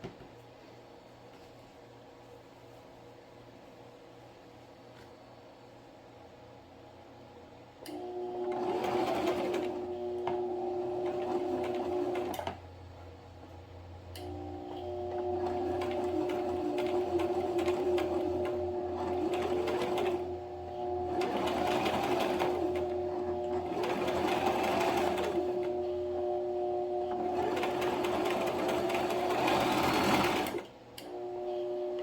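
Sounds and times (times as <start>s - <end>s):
sewing machine stitching: 7.9s - 12.6s, 14.2s - 32.0s.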